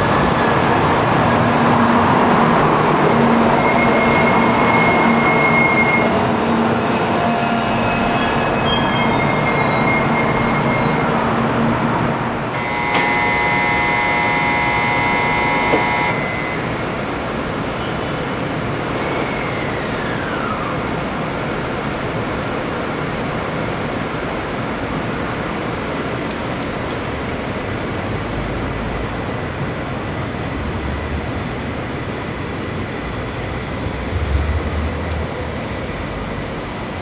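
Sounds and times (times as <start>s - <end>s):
train and station rush: 0.0s - 37.0s
electronic multi-tone signal: 12.6s - 16.8s.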